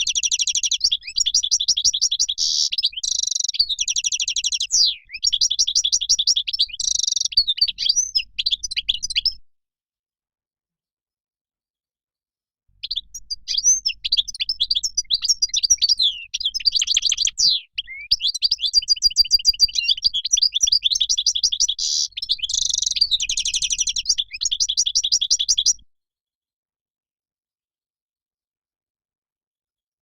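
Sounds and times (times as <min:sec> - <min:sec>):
finch twittering song: 0:00.0 - 0:09.4, 0:12.8 - 0:25.8.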